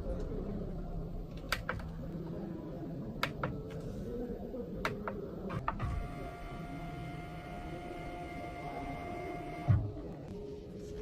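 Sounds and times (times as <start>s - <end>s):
small electric motor whine: 5.8s - 9.8s.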